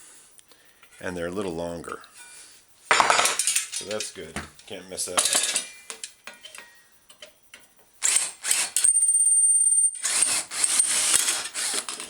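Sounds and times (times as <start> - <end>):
metal clatter: 2.9 - 4.2, 5.1 - 7.3
drill scraping metal: 8.0 - 9.0, 10.0 - 12.0
power drill whining: 8.0 - 9.1, 10.0 - 12.0.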